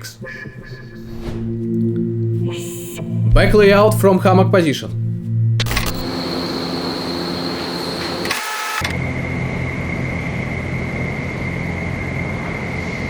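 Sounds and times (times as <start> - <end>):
thin high whine: 0.0 - 13.0
wind tunnel air and fan rush: 9.0 - 13.0.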